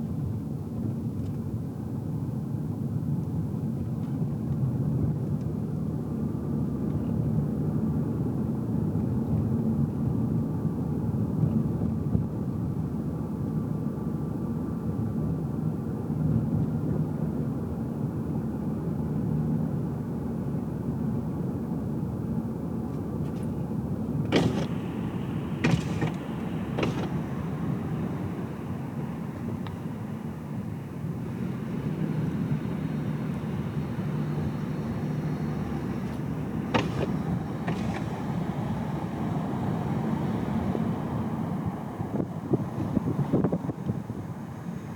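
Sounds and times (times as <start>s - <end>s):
car engine and road rumble: 0.0s - 44.9s
sharp clicks or knocks: 24.3s - 24.9s, 25.6s - 27.4s, 36.1s - 38.3s.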